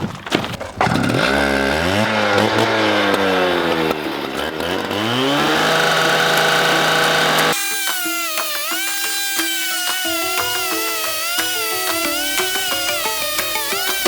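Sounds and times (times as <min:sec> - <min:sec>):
engine revving: 0:00.8 - 0:14.0.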